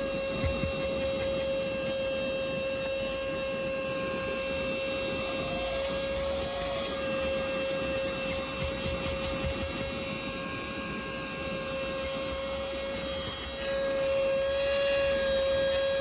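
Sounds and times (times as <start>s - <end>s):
handheld vacuum motor whine: 0.0s - 16.0s.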